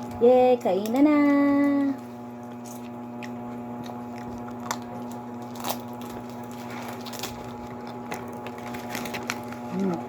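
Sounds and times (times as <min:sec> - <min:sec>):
steady low hum: 0:00.0 - 0:10.0
food packaging rustling: 0:04.3 - 0:10.0.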